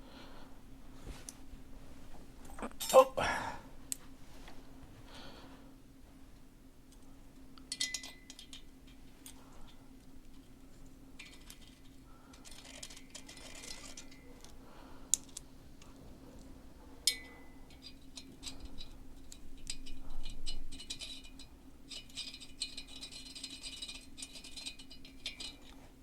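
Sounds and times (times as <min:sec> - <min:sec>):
faint steady hum: 0:00.0 - 0:26.0
small steel parts clinking: 0:07.7 - 0:09.4, 0:11.2 - 0:15.4, 0:17.0 - 0:25.8.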